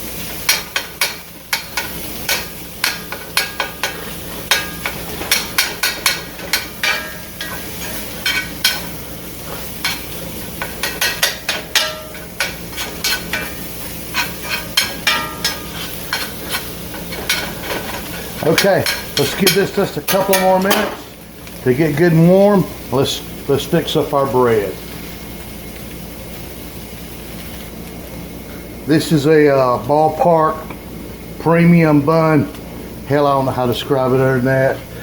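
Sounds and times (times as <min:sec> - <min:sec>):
meat sizzling in a pan: 0:00.0 - 0:28.8
utensil scraping a pan: 0:00.5 - 0:20.8.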